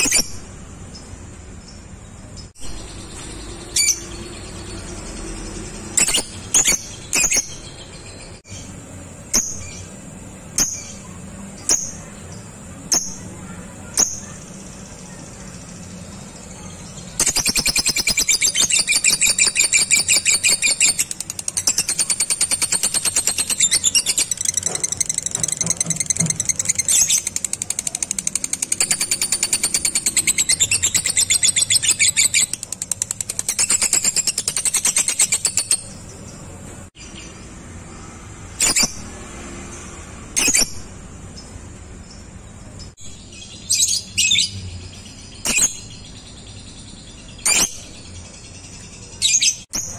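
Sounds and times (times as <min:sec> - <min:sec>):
bird chattering trill: 0:17.0 - 0:36.1.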